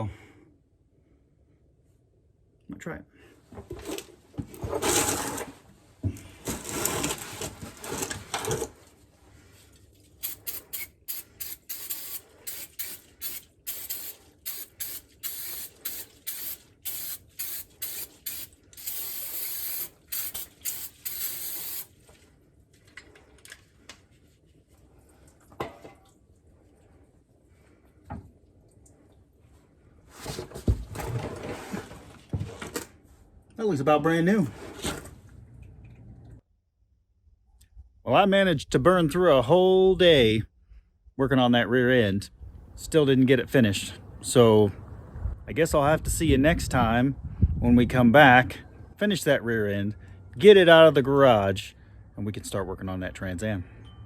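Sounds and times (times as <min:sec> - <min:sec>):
aerosol spray hissing: 0:10.2 - 0:21.9.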